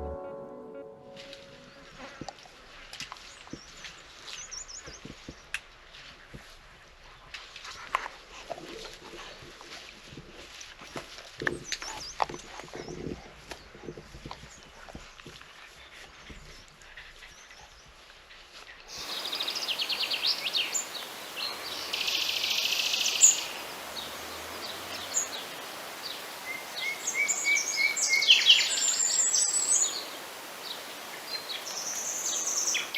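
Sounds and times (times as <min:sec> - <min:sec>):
steady outdoor hiss: 0:00.0 - 0:32.9
small birds singing and chirping: 0:03.2 - 0:05.6, 0:10.9 - 0:18.0, 0:18.9 - 0:32.9.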